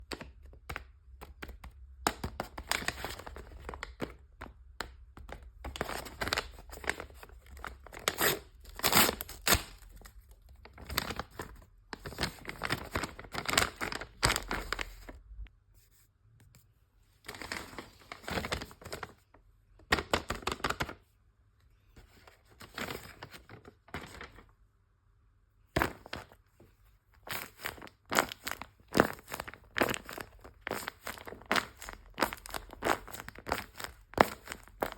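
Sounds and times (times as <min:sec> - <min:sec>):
paper tearing and crinkling: 0:06.2 - 0:10.1, 0:27.2 - 0:34.9.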